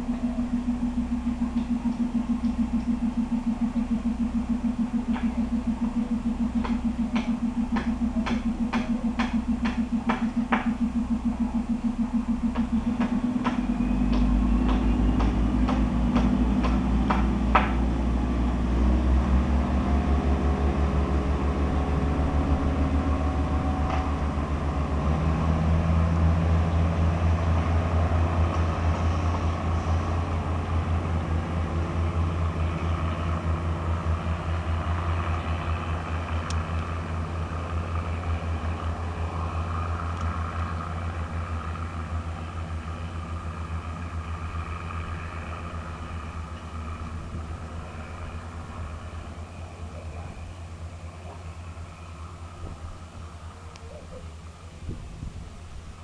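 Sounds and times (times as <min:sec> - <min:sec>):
diesel engine droning: 0:00.0 - 0:56.0
sharp clicks: 0:06.6 - 0:10.9.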